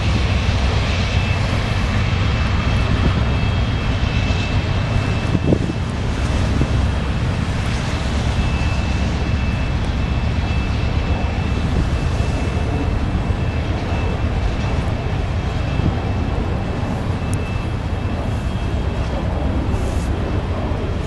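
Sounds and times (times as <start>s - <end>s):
diesel locomotive engines: 0.0s - 21.0s
train cars rumbling on rails: 0.0s - 21.0s
high squeal from wheels: 16.8s - 19.1s.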